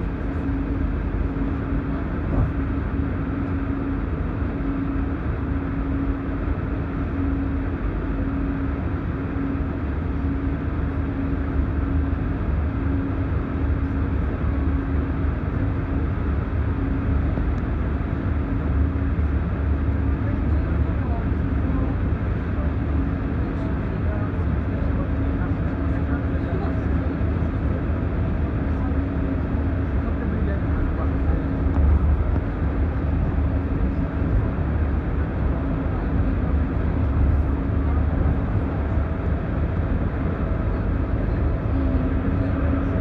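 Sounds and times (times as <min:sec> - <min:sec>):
train rumbling: 0:00.0 - 0:04.0, 0:22.6 - 0:43.0
pulsing electric hum: 0:00.0 - 0:43.0.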